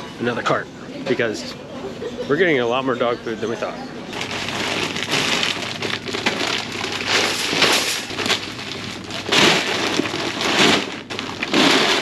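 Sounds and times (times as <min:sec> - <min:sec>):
plastic bags crinkling: 0:04.1 - 0:12.0.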